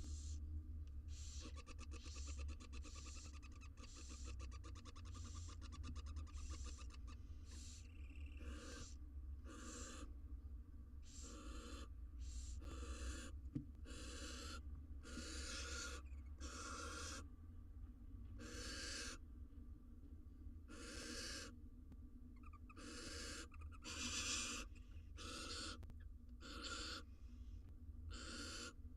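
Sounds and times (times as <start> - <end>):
owl nestlings hissing: 0.0 - 0.4, 1.1 - 10.1, 11.0 - 17.2, 18.4 - 19.2, 20.7 - 21.5, 22.7 - 25.8, 26.4 - 27.1, 28.1 - 28.8
low electrical hum: 0.0 - 28.9.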